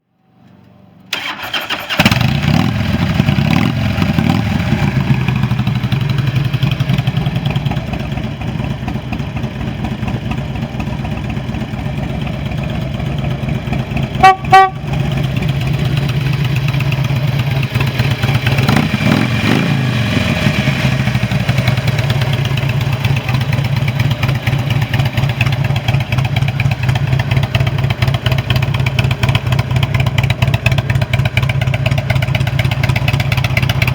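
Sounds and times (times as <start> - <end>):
motorcycle starter cranking: 1.1 - 2.7
motorcycle engine idling: 2.2 - 33.9
engine throttle blip: 14.1 - 15.6
horn beeps: 14.2 - 14.9.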